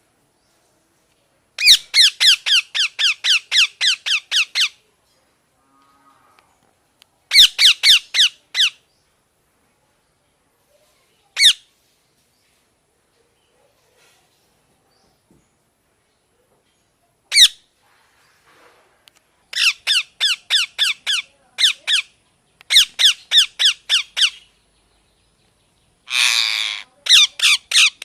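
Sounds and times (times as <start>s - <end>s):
parrot squawking: 1.6s - 4.8s, 7.3s - 8.8s, 11.4s - 11.6s, 17.3s - 17.6s, 19.5s - 22.1s, 22.7s - 24.4s, 26.1s - 28.0s
harsh parrot screech: 26.1s - 28.0s.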